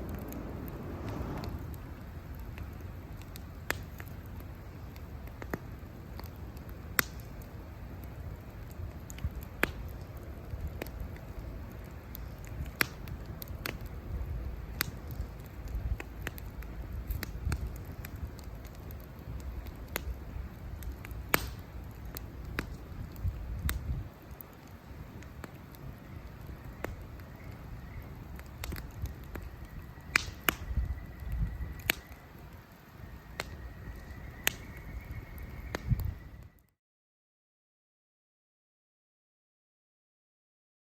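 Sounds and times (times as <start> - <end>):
low steady rumble: 0.0 - 5.2
campfire crackling and popping: 0.0 - 36.7.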